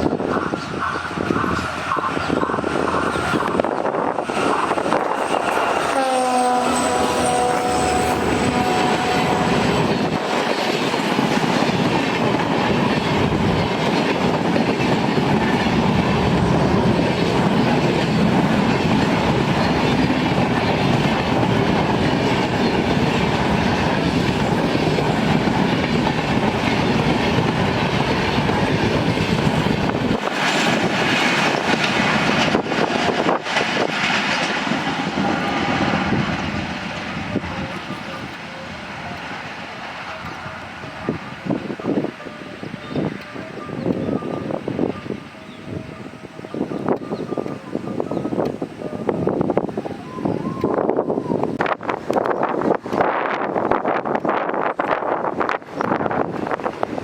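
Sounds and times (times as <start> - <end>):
train coaches clickety-clack: 0.0 - 57.0
train horn: 4.1 - 11.0, 38.6 - 48.1.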